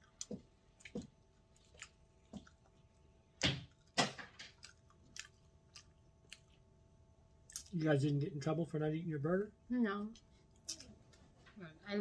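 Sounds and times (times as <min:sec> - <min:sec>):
person chewing food: 0:00.0 - 0:07.8.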